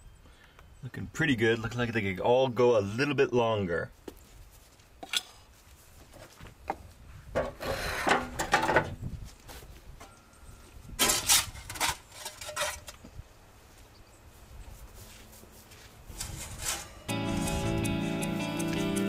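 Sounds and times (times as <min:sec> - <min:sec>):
wooden peel scraping oven hearth: 0:16.1 - 0:17.7.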